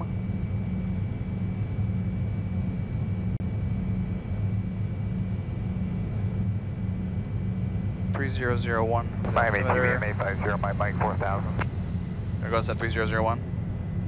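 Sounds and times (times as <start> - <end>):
jet cockpit airflow rush: 9.1 - 13.0.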